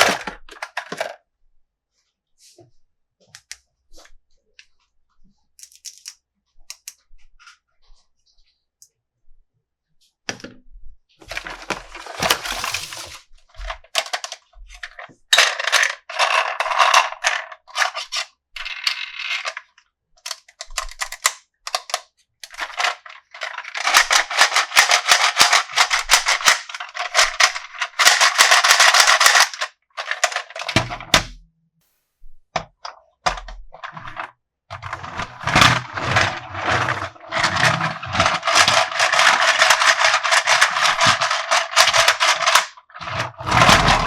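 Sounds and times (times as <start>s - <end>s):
plastic and cardboard crinkling: 11.2s - 15.0s.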